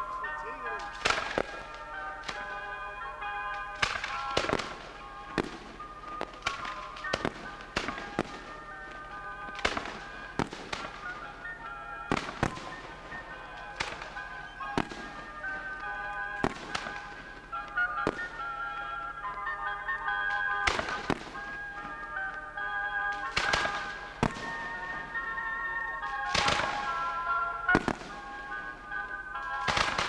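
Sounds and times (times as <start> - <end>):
fireworks bangs: 0.0 - 30.0
music playing: 0.0 - 30.0.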